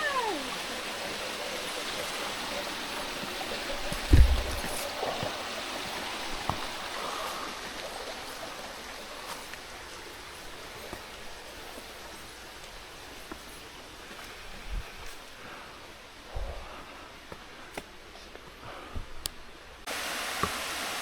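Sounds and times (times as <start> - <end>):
stream water rushing: 0.0 - 16.2, 19.8 - 21.0
loud low thump: 4.0 - 4.8.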